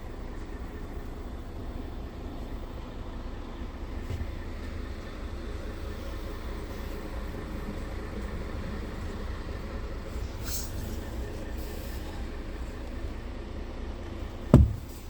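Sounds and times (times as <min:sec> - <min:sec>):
diesel truck engine rumble: 0:00.0 - 0:15.0
brief hiss: 0:10.4 - 0:12.1.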